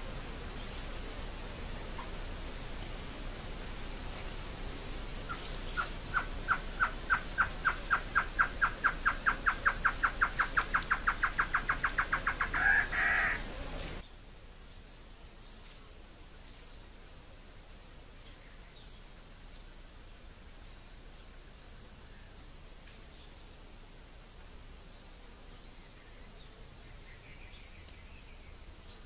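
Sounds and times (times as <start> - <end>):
high insect drone: 0.0 - 29.0
bird piping song: 4.7 - 14.0.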